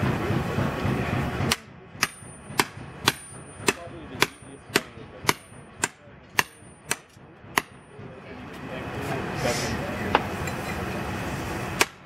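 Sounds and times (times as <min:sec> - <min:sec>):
hammer striking steel: 0:00.0 - 0:08.2, 0:11.8 - 0:12.0
voices: 0:00.0 - 0:11.9.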